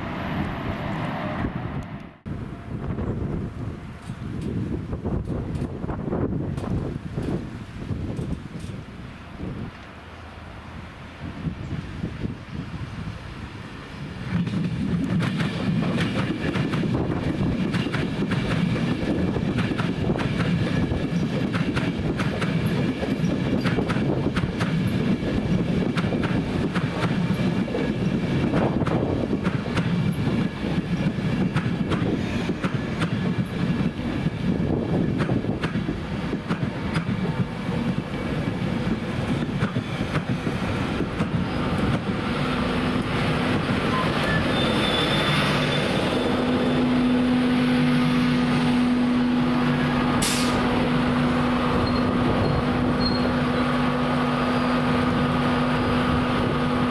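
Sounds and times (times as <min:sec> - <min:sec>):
train rumble: 0:00.0 - 0:56.9
wheels clicking over rail joints: 0:06.5 - 0:08.9.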